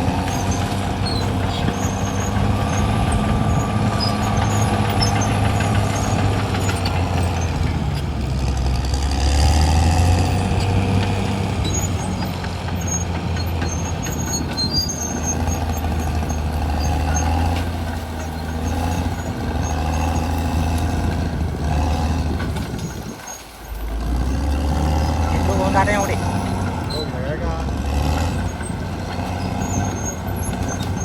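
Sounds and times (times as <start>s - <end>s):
bulldozer diesel engine: 0.0s - 31.0s
faint high squeaks: 11.6s - 21.1s, 28.1s - 31.0s.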